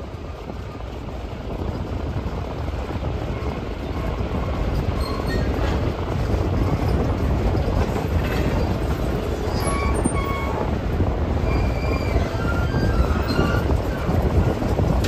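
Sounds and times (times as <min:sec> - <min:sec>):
train wheels rumbling on rail: 0:00.0 - 0:15.0
faint wheel squeals: 0:04.8 - 0:05.6, 0:09.4 - 0:10.7, 0:11.4 - 0:13.8.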